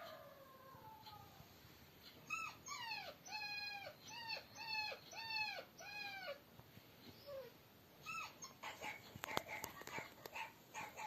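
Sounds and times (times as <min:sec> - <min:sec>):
dog yelping: 0:02.2 - 0:06.4, 0:07.2 - 0:11.0.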